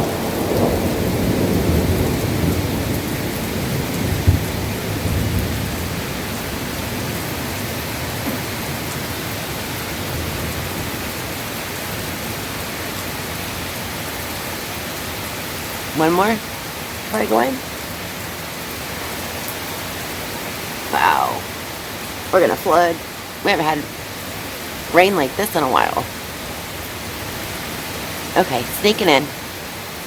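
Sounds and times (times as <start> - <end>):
thunder rumbling: 0.0 - 11.0
heavy rain pouring: 0.0 - 30.0.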